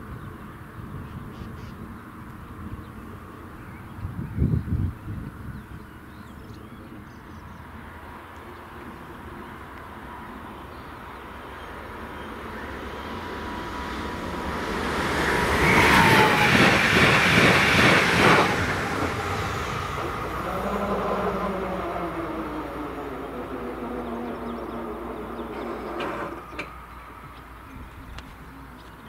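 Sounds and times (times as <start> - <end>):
train passing: 5.3 - 29.0
wheels clattering on rails: 19.9 - 27.5.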